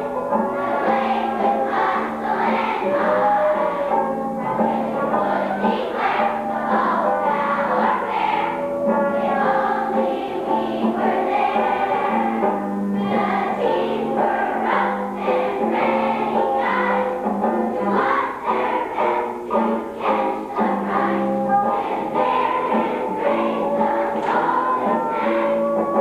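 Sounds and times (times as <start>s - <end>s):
choir singing with accompaniment: 0.0s - 26.0s.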